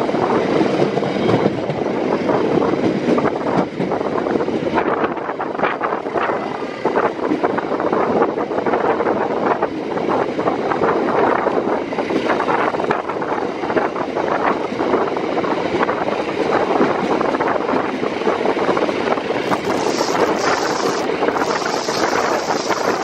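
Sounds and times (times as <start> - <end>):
train wheels rumbling on track: 0.0 - 23.0
high hiss: 19.4 - 23.0.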